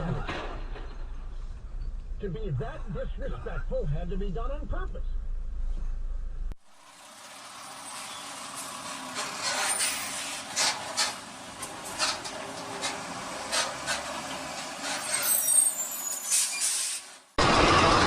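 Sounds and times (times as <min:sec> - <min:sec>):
traffic and tyre hiss: 0:06.6 - 0:17.4.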